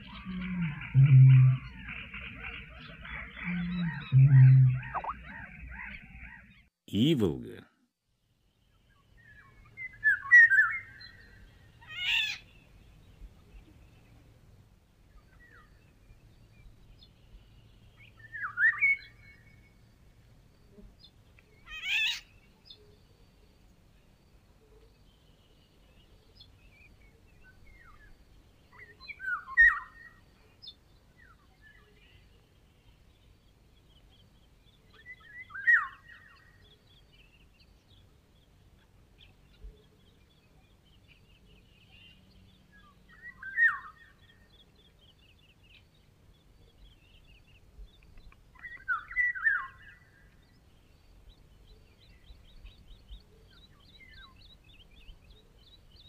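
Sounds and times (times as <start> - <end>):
small birds chirping: 0.0 - 7.6, 20.6 - 56.0
bird singing fluty whistles: 3.4 - 5.3.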